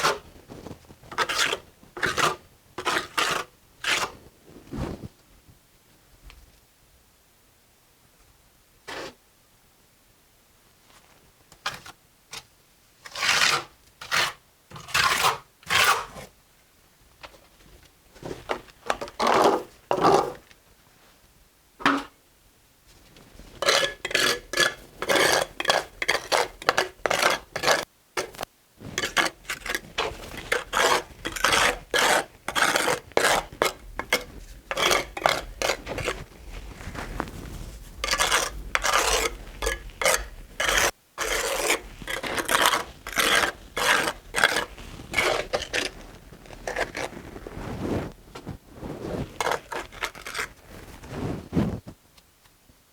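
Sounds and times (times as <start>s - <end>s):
trowel scraping mortar on brick: 0.0s - 0.3s, 1.1s - 4.2s, 8.9s - 9.2s, 13.0s - 16.3s, 18.9s - 20.4s, 23.6s - 48.2s, 49.2s - 50.6s.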